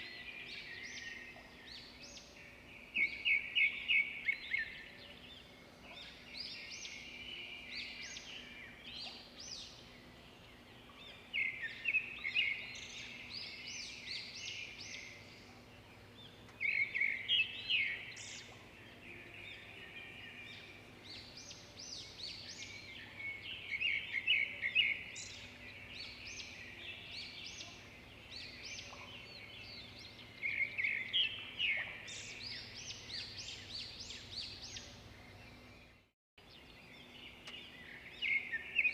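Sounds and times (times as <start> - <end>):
small songbirds chirping and trilling: 0.0 - 38.9.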